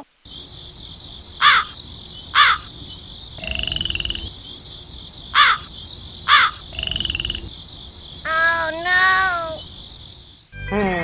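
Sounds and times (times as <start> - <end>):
high-pitched insect chorus hiss: 0.0 - 11.0
rasping pulsed croak: 0.3 - 10.6
harsh falling animal calls: 1.2 - 9.7.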